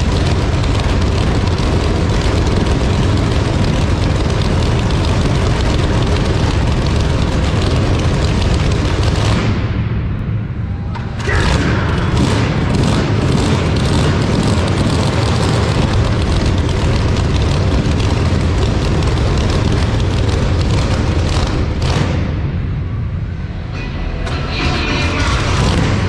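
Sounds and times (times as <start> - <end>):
mini bike engine running: 0.0 - 9.4, 11.2 - 22.1.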